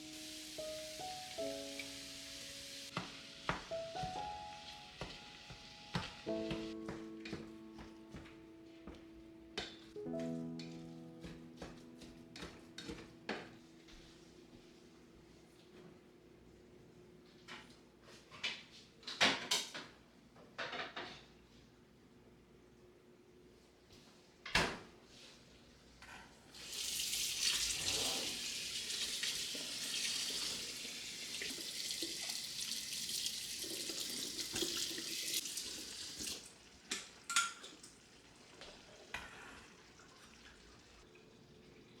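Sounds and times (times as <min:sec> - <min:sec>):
tap running into sink: 0:27.1 - 0:37.5.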